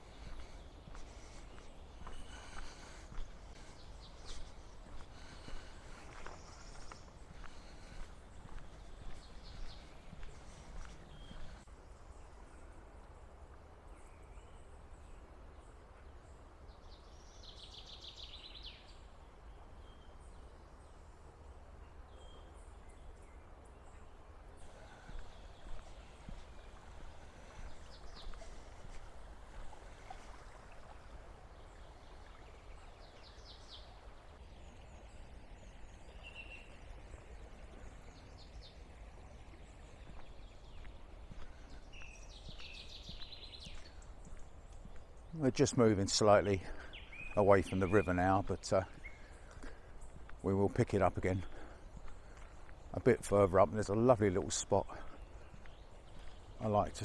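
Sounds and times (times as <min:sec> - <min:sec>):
river flowing: 0:00.0 - 0:16.7, 0:21.0 - 0:57.0
bird chirps: 0:34.6 - 0:57.0.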